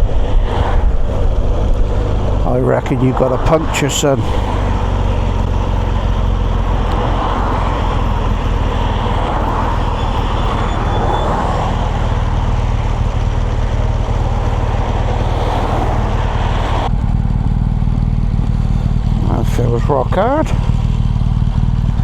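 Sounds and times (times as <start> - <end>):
rushing wind and road noise: 0.0 - 22.0
motorcycle engine running: 0.1 - 22.0.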